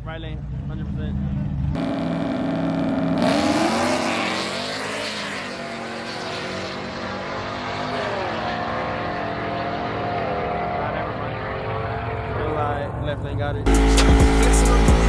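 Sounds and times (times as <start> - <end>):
drag racing engine accelerating: 0.3 - 15.0.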